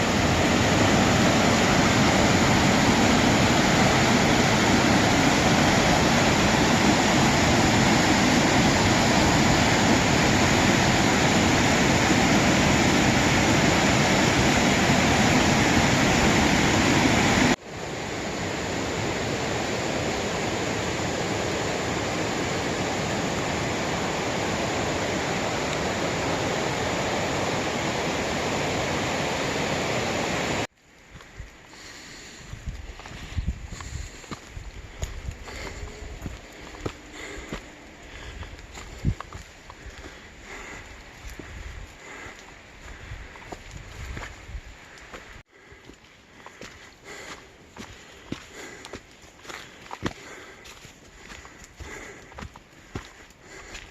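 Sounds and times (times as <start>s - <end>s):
waterfall rushing: 0.0s - 30.7s.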